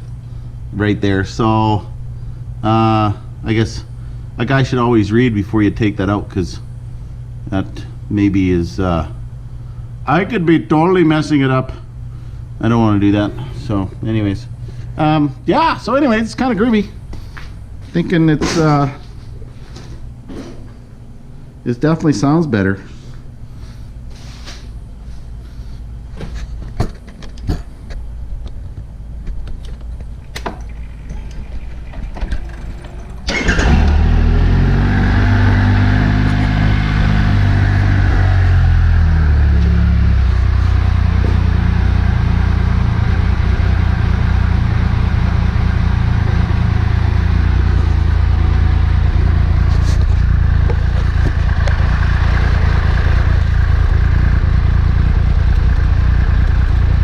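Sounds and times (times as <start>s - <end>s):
motorcycle engine starting and idling: 29.6s - 57.0s.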